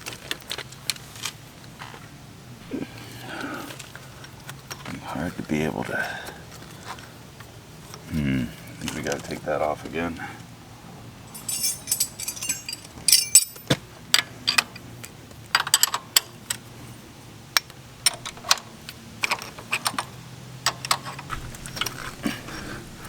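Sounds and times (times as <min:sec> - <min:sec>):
metallic clatter of hand tools: 0:11.3 - 0:16.6, 0:17.6 - 0:23.0.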